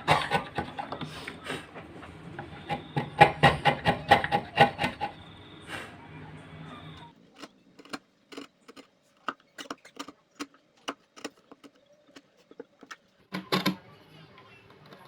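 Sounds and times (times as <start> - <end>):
hand tools knocking on wood: 2.6 - 5.1.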